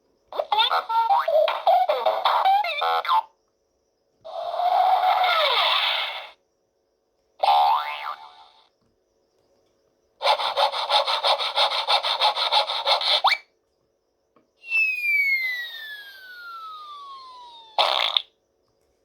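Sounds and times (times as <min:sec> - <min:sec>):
falling whistle effect: 0:14.6 - 0:17.8.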